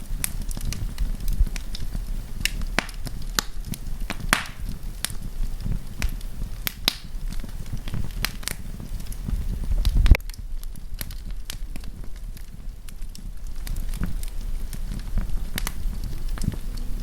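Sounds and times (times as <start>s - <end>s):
campfire crackling and popping: 0.0s - 17.0s
low rumble: 0.0s - 17.0s.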